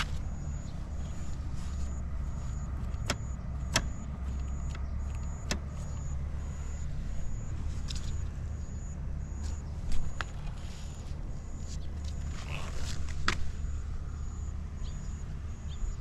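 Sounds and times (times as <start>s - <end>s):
small engine idling: 0.0s - 16.0s
sharp clicks: 1.8s - 6.8s.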